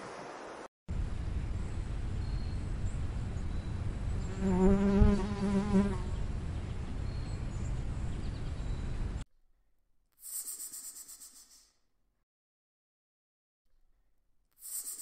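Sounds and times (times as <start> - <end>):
steady low rumble: 0.9 - 4.3
insect wings buzzing: 4.0 - 6.3, 10.2 - 11.6, 14.6 - 15.0.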